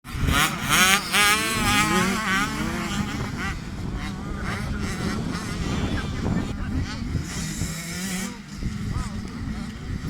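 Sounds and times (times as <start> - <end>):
motocross bikes revving: 0.1 - 10.0.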